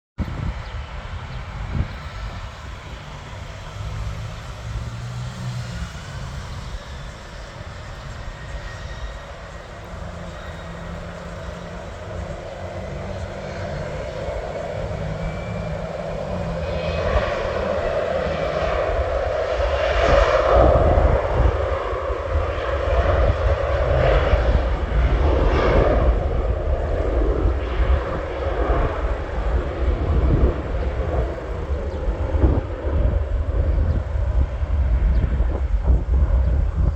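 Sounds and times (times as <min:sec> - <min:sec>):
faint high engine whine: 0:00.2 - 0:36.9
jet aircraft taking off: 0:00.2 - 0:36.9
deep rumble: 0:08.4 - 0:36.9.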